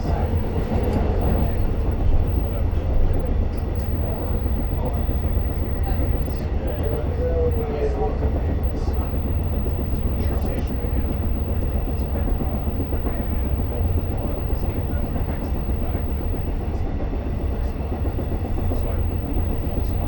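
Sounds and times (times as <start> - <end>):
train rumble inside coach: 0.0 - 3.8.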